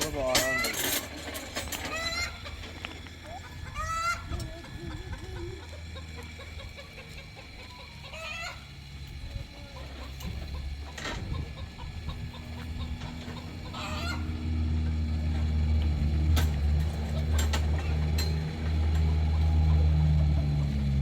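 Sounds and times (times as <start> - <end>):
low motor hum: 0.0 - 21.0
chicken calling: 1.9 - 8.9, 9.6 - 14.6.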